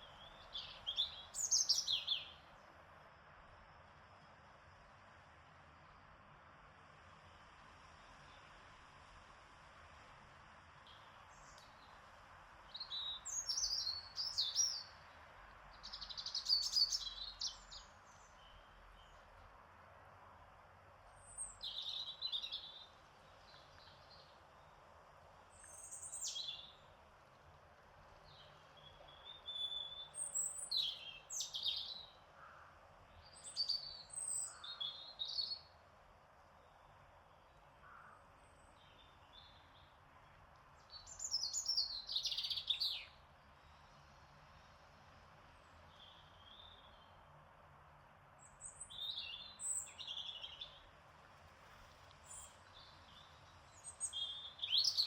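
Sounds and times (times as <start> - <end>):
faint steady hiss: 0.0 - 55.0.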